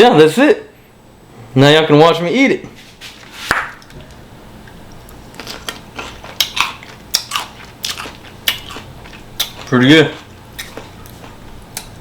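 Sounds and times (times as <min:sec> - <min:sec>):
crunching on cucumber: 0:05.1 - 0:12.0.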